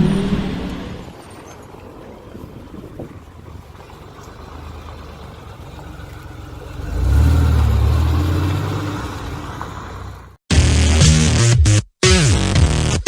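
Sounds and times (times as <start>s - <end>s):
car engine accelerating: 3.5s - 10.4s.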